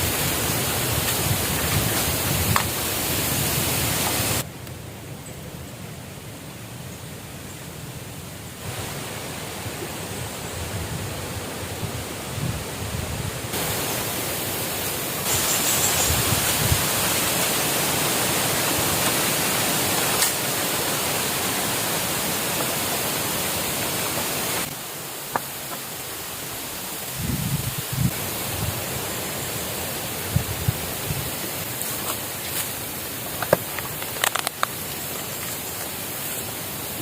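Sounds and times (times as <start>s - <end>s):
rushing water: 0.0s - 4.5s, 8.5s - 37.0s.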